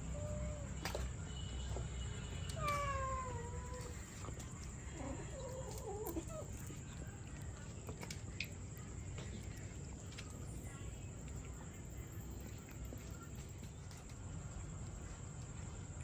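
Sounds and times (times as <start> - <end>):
cats meowing: 0.0 - 0.9, 2.5 - 6.7.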